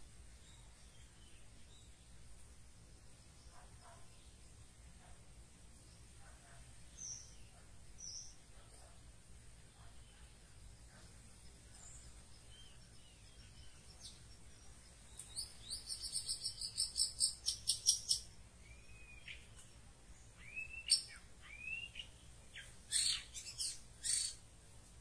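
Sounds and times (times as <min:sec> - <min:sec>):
high rising bird chirps: 0:15.1 - 0:19.6, 0:20.4 - 0:24.4
curving bird whistles: 0:20.4 - 0:22.1.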